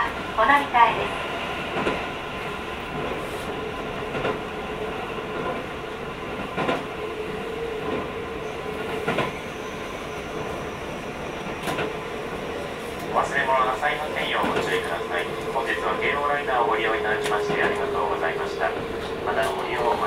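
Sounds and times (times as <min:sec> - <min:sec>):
train running rumble: 0:10.3 - 0:20.0.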